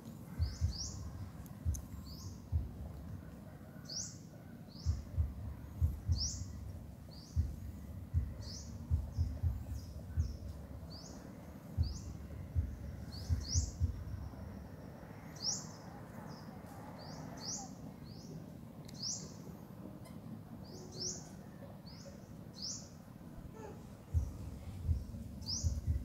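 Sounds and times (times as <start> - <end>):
bird chirping: 0.1 - 23.0, 23.6 - 26.0
dull low thumps: 0.4 - 3.2, 4.8 - 11.0, 11.8 - 14.6, 24.1 - 26.0.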